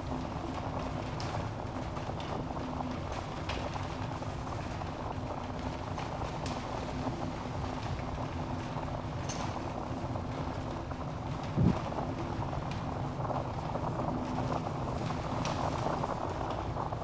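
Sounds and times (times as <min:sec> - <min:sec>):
fireplace flames rumbling: 0:00.0 - 0:17.0.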